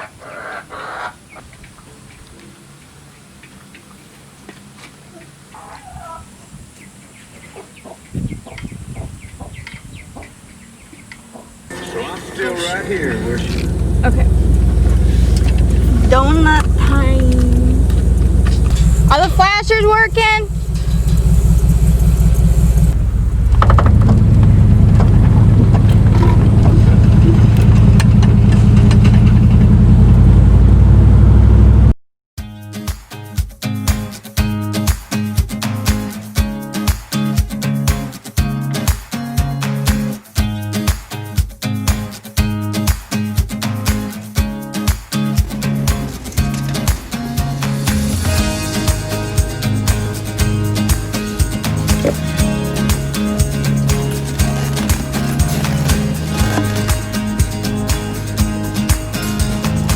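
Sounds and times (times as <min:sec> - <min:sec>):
chickens clucking: 0:00.0 - 0:16.8, 0:45.4 - 0:58.3
car engine and road noise: 0:06.5 - 0:32.0, 0:45.2 - 0:59.9
low rumble on microphone: 0:12.8 - 0:32.0.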